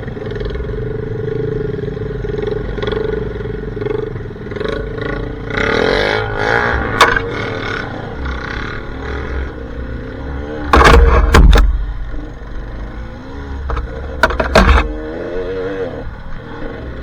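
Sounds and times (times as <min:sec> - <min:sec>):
dirt bike engine revving: 0:03.8 - 0:17.0
low rumbling: 0:10.6 - 0:15.2
loud knocks: 0:10.7 - 0:12.3, 0:13.6 - 0:15.0.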